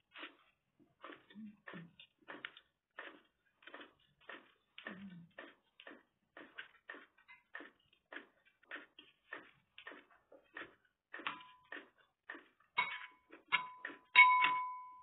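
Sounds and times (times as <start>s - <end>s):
person chewing crunchy food: 0.0s - 14.1s.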